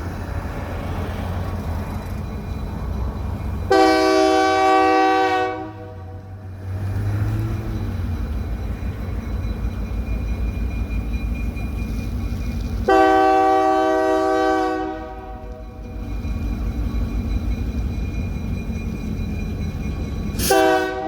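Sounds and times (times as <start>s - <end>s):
diesel locomotive engine rumbling: 0.0s - 21.0s
train horn blast: 3.7s - 6.5s, 12.9s - 15.7s, 20.4s - 21.0s.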